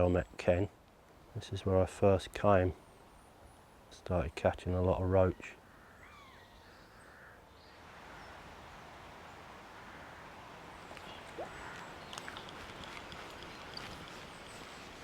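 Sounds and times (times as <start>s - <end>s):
flowing water hiss: 7.8s - 15.0s
light clicks: 10.9s - 14.6s.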